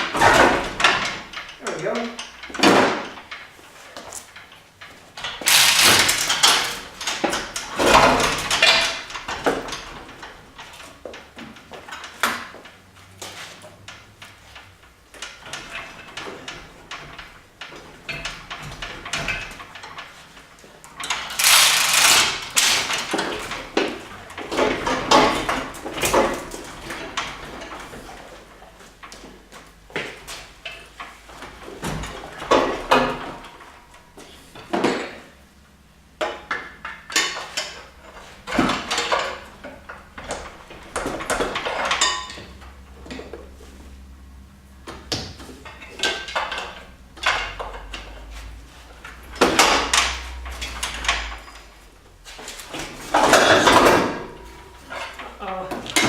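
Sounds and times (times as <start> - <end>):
metallic clanking and scraping: 0.0 - 56.0.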